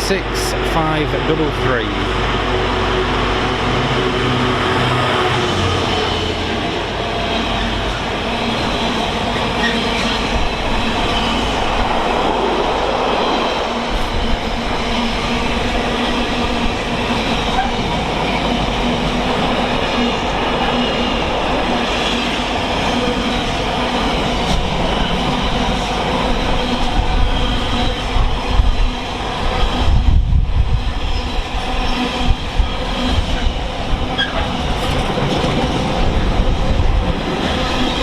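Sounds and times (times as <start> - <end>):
freight train wheels rumbling: 0.0 - 38.0
train wheels clickety-clack: 15.8 - 28.8, 31.1 - 38.0.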